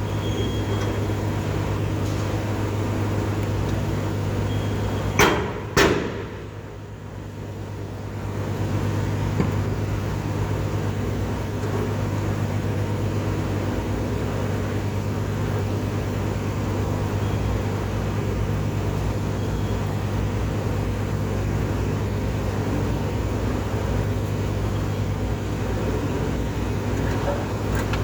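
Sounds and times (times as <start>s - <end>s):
constant low hum: 0.0s - 28.0s.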